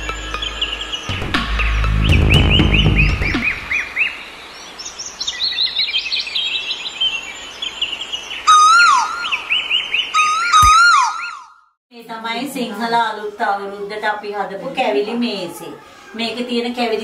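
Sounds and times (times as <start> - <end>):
bird whistled falling calls: 8.4 - 11.6
higher bird call series: 8.4 - 11.7.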